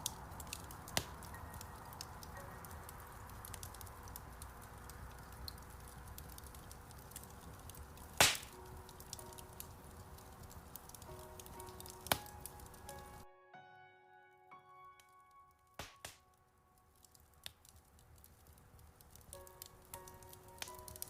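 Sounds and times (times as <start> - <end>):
soft piano notes: 0.0 - 6.4, 7.4 - 17.4, 19.2 - 21.0
loud pops of fire: 0.0 - 12.8, 15.8 - 16.2
fireplace fire crackling: 0.0 - 13.4, 14.4 - 21.0.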